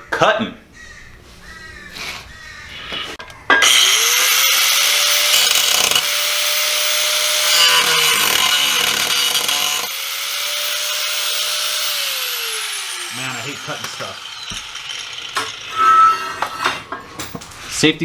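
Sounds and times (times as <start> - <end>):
power cutting tool cutting sheet metal: 3.6 - 16.9.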